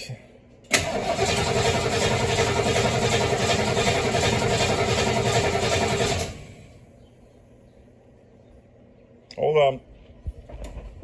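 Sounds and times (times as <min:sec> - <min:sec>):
engine cranking without starting: 0:00.7 - 0:06.7.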